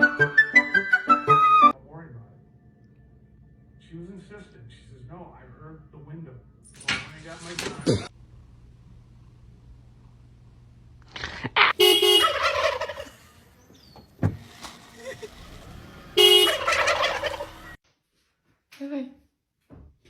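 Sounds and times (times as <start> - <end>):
loud animal calls: 11.2 - 13.4, 16.3 - 17.8.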